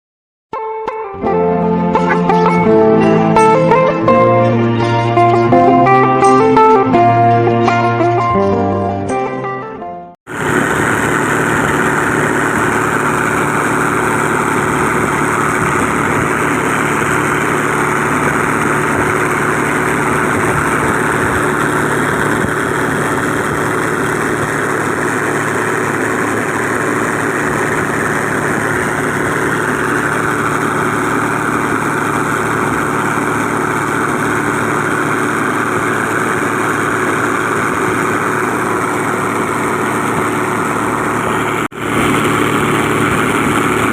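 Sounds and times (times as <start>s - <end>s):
motor boat engine running: 10.3s - 43.9s.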